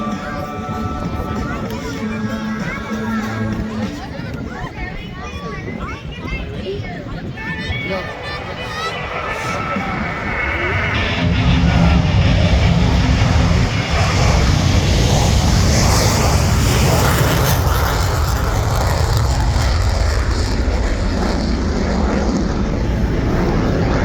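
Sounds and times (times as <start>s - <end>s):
jet engine roaring: 6.8s - 24.0s.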